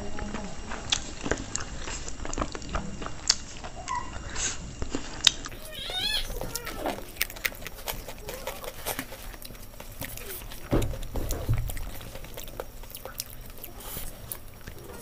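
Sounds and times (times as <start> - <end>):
chewing and lip smacks: 0.1 - 15.0
dull thump: 10.4 - 12.4.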